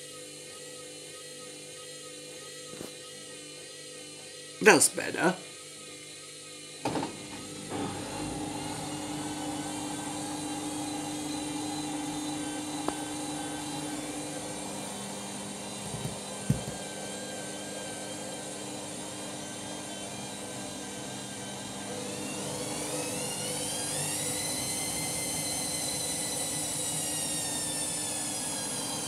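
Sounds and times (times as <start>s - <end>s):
washing machine motor whine: 0.0s - 29.0s
washing machine knocks: 15.9s - 16.8s.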